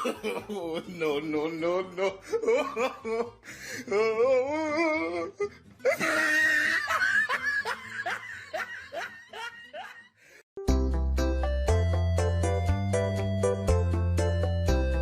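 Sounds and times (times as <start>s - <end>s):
person laughing hard: 0.0s - 1.2s, 1.9s - 10.4s
music: 0.4s - 10.0s, 10.6s - 15.0s.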